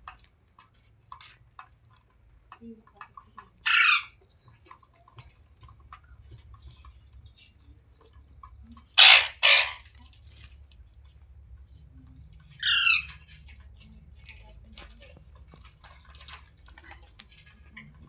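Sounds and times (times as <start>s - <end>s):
parakeet harsh screeches: 3.6s - 4.1s, 9.0s - 9.9s, 12.6s - 13.2s.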